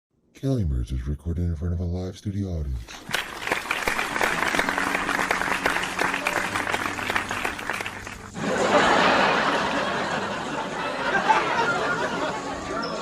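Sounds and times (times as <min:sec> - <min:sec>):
studio audience applause: 0:03.0 - 0:11.1.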